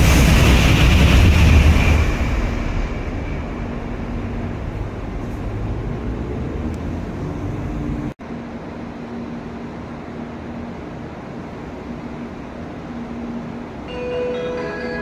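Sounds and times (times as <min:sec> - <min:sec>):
low rumble: 0:00.0 - 0:08.2
train equipment humming: 0:00.0 - 0:15.0.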